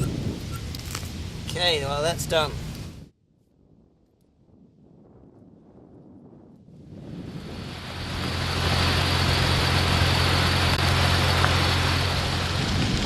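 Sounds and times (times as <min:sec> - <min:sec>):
wind rushing over microphone: 0:00.0 - 0:13.0
low engine drone: 0:07.0 - 0:13.0.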